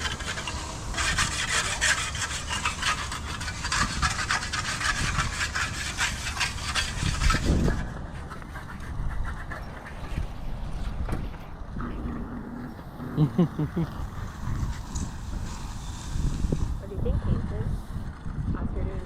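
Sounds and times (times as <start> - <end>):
hand tool scraping wet concrete: 0.0 - 10.4.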